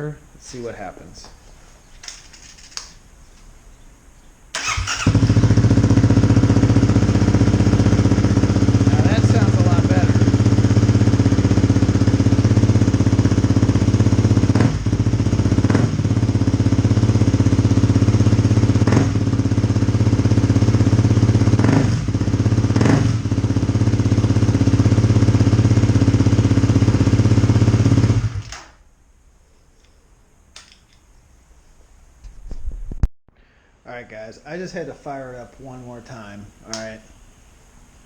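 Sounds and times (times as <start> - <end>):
motorcycle engine idling: 4.6 - 28.4.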